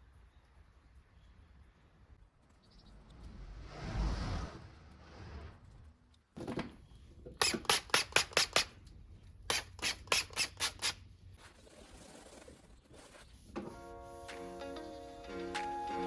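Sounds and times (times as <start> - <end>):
spray bottle spritzing: 7.4 - 8.8, 9.5 - 11.0.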